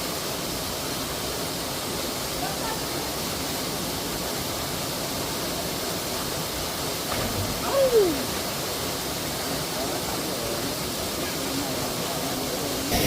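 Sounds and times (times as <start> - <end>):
waterfall rushing: 0.0 - 13.0
short falling cry: 7.4 - 8.4.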